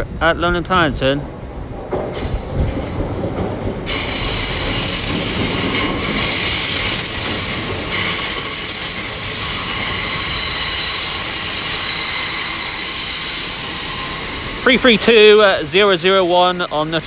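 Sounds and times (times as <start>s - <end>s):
train low rumble: 0.0s - 17.0s
train wheels squealing: 3.9s - 17.0s.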